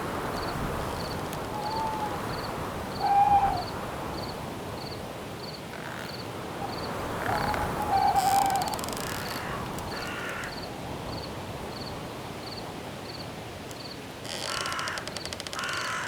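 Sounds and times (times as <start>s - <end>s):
wind rustling leaves: 0.0s - 16.0s
cricket chirping: 0.2s - 13.2s
owl hooting: 1.5s - 3.8s, 6.6s - 9.4s.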